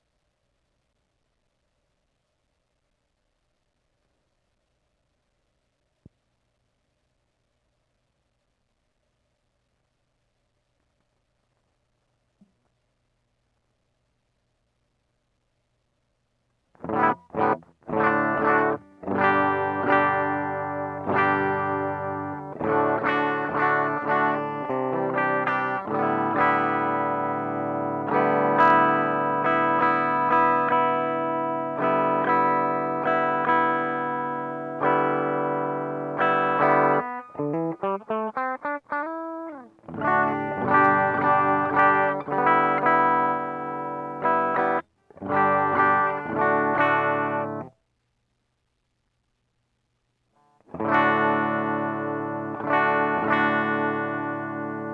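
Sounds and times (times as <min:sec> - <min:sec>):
distorted electric guitar: 0:16.8 - 0:47.7, 0:50.6 - 0:54.9.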